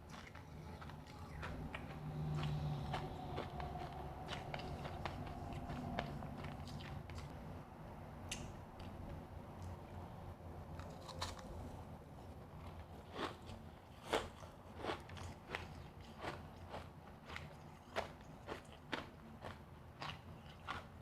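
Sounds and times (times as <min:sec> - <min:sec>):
ice being chewed: 0:00.0 - 0:07.3, 0:12.6 - 0:21.0.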